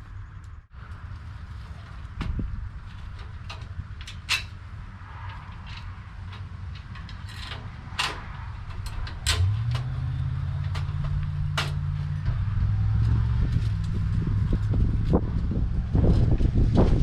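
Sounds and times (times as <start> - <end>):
low rumbling hum: 0.0 - 17.0
metal parts clanking: 2.8 - 14.0.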